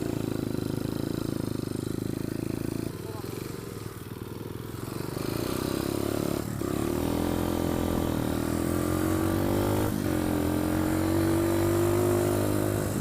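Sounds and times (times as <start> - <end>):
pit bike engine under throttle: 0.0 - 13.0.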